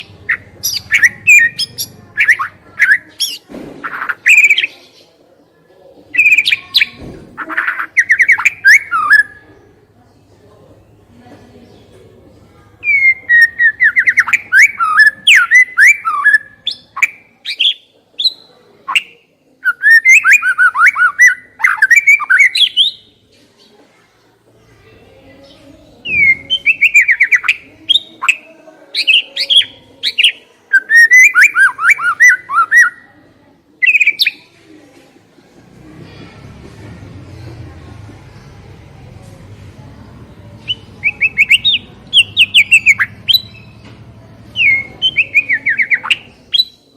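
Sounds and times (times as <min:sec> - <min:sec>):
songbird singing: 0:00.0 - 0:05.1, 0:06.1 - 0:09.8, 0:12.8 - 0:23.3, 0:24.6 - 0:33.1, 0:33.8 - 0:34.4, 0:40.0 - 0:46.9.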